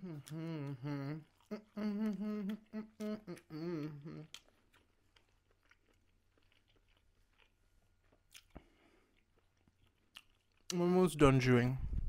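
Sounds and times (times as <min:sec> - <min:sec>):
wet mouth clicks: 0:00.0 - 0:07.0, 0:08.3 - 0:09.5
close-up chewing: 0:00.0 - 0:10.8.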